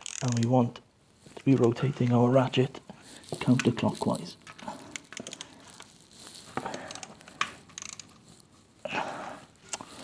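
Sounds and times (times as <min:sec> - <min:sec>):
ratchet clicking: 0:00.0 - 0:00.5, 0:04.9 - 0:05.5, 0:07.7 - 0:08.1.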